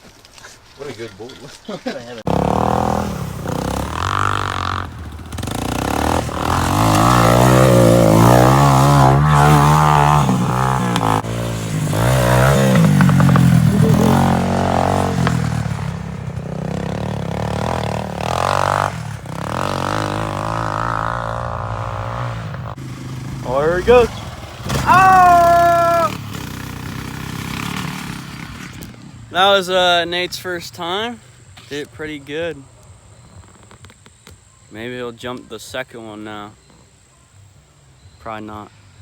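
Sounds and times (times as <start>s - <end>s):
atv engine revving: 2.2s - 29.4s.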